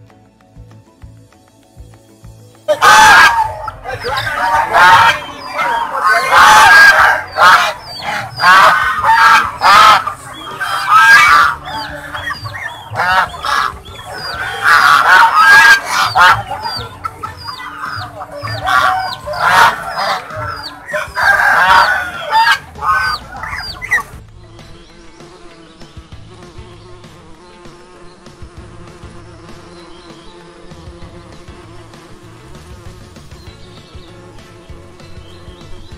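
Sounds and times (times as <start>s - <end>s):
waterfowl honking: 2.7s - 24.2s.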